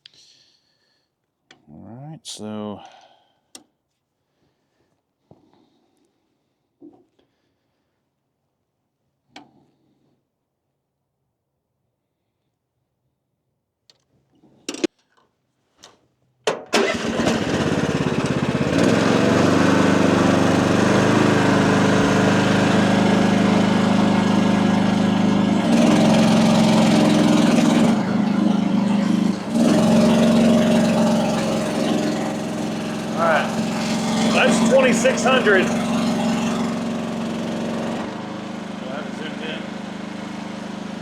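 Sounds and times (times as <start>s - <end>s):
excavator engine running: 16.8s - 41.0s.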